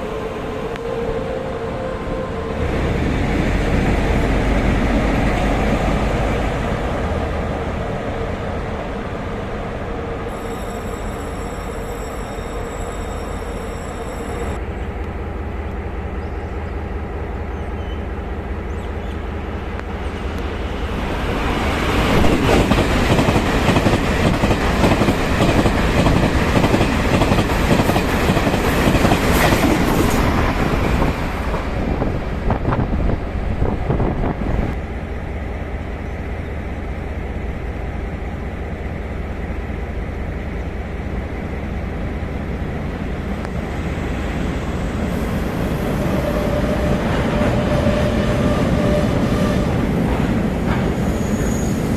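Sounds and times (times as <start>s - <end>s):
train wheels clattering on rails: 21.8s - 31.7s, 46.3s - 51.9s.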